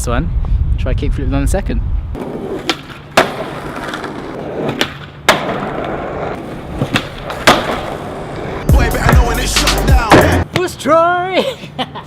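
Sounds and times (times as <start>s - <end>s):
skateboard clacking on ground: 2.2s - 8.2s
skateboard wheels rolling on wet paving: 2.2s - 8.7s.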